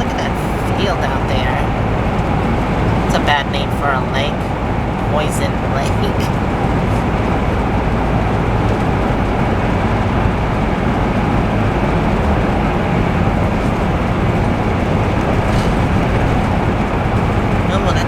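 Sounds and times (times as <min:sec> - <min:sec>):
vehicle road and engine rumble: 0:00.0 - 0:18.0.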